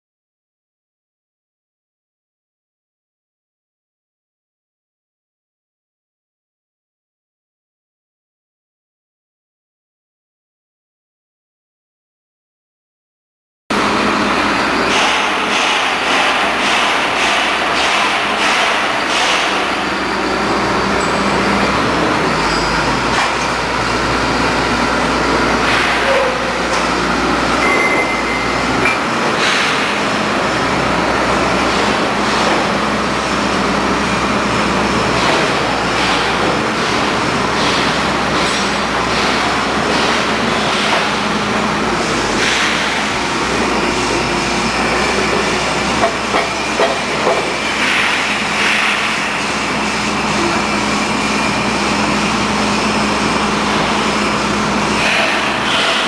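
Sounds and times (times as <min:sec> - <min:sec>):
drilling rig running: 0:13.7 - 0:56.0.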